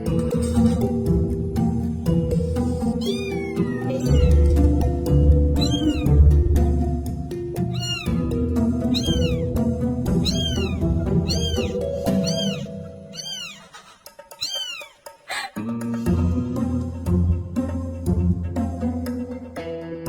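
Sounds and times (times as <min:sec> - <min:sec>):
background music: 0:00.0 - 0:13.2, 0:15.6 - 0:20.0
kittens mewing: 0:02.4 - 0:06.8, 0:07.6 - 0:15.6.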